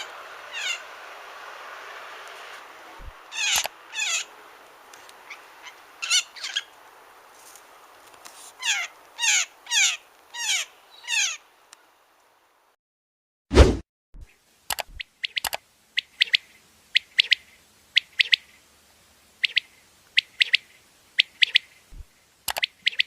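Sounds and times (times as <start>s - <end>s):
bird calls sliding down: 2.2s - 4.2s
steady hiss: 14.3s - 22.9s.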